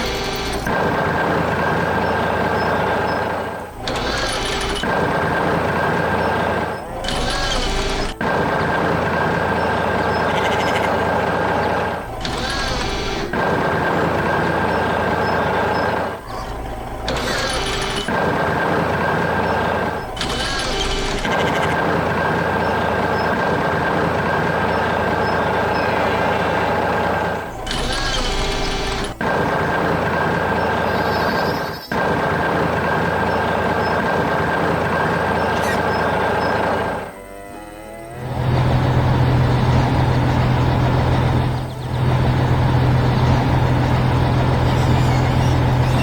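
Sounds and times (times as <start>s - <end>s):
truck engine running: 0.0s - 46.0s
high whine: 33.2s - 46.0s.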